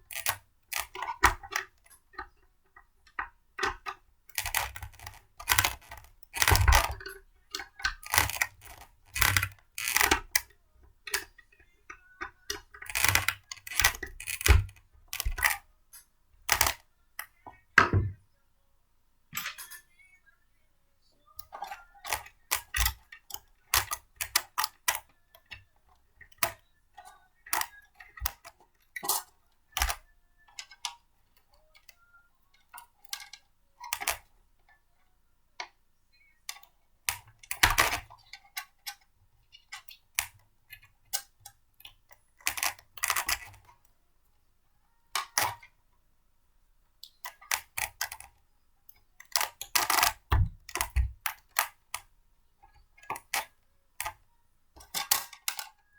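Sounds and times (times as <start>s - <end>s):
plastic clicks and knocks: 0.1s - 15.6s, 16.4s - 18.2s, 49.2s - 52.1s.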